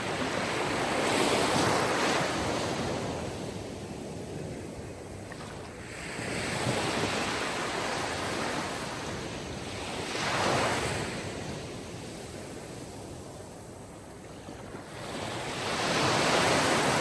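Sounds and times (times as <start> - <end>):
waves breaking: 14.6 - 17.0.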